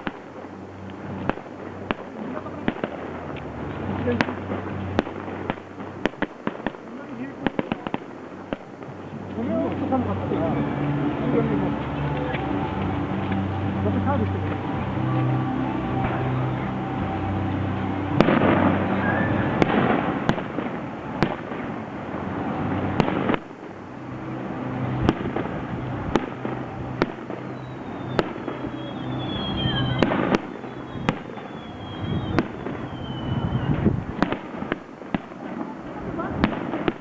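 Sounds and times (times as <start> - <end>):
low steady hum: 0.0 - 37.0
whistles falling in pitch: 18.9 - 19.6, 27.5 - 33.9.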